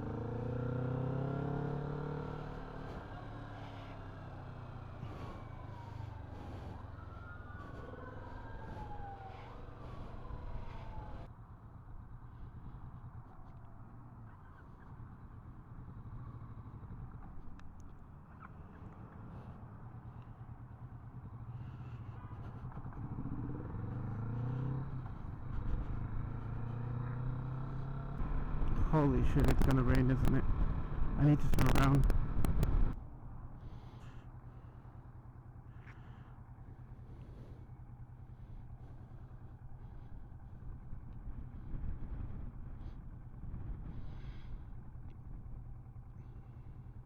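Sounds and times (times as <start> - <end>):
motorcycle engine running: 0.0 - 47.0
road noise: 0.0 - 47.0
siren wailing: 4.8 - 11.3
motorcycle engine pulling: 22.2 - 33.0.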